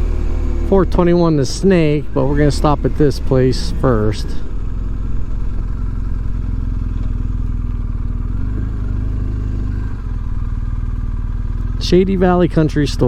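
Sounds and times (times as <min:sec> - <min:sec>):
motorcycle engine droning: 0:00.0 - 0:13.0.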